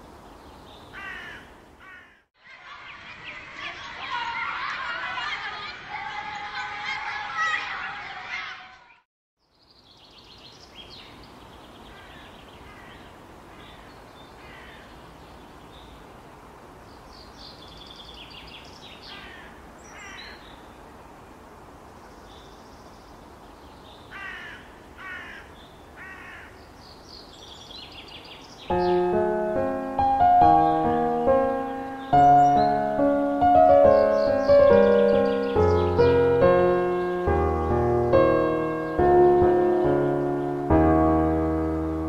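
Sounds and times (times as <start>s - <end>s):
outdoor background hiss: 0.0s - 8.4s, 9.4s - 42.0s
harsh bird calls: 17.2s - 20.7s, 23.9s - 29.7s, 30.6s - 40.6s
birds calling and chirping: 22.1s - 29.8s, 30.6s - 40.7s.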